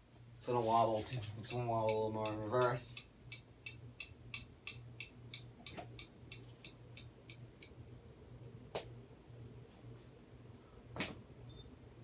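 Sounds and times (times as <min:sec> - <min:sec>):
ceiling fan motor hum: 0:00.0 - 0:12.0
fan ticking: 0:01.0 - 0:07.8.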